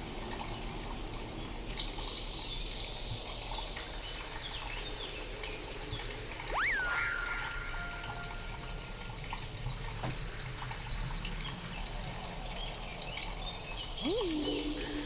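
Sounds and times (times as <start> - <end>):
processed rain noise: 0.0 - 15.0
swooping electronic tone: 6.5 - 8.9, 14.0 - 15.0.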